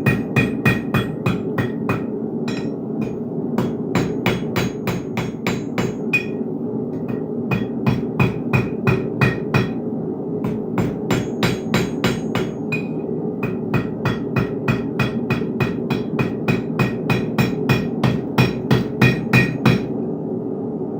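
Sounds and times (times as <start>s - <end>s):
hammer striking steel on anvil: 0.0s - 9.8s, 10.4s - 19.9s
steady low hum: 0.0s - 20.9s.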